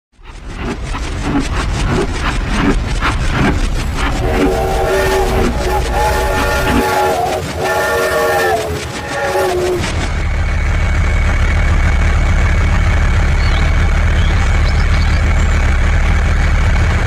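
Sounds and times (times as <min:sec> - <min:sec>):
low engine rumble: 0:00.1 - 0:17.0
horn blasts: 0:04.0 - 0:10.3.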